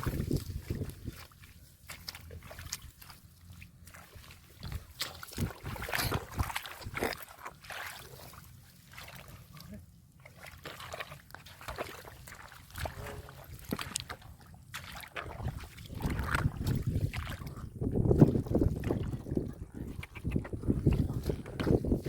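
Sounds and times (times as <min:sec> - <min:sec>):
splashing in muddy water: 0:00.0 - 0:22.0.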